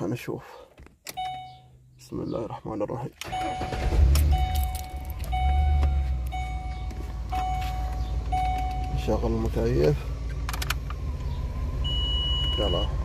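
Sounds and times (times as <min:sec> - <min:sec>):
dashboard warning chime: 0:01.1 - 0:01.8, 0:03.2 - 0:09.4, 0:11.8 - 0:13.0
car engine idling: 0:03.2 - 0:13.0.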